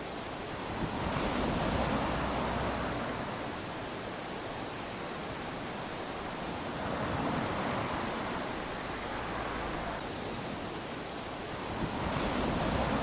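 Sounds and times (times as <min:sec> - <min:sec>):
small waves washing onto beach: 0:00.0 - 0:13.0.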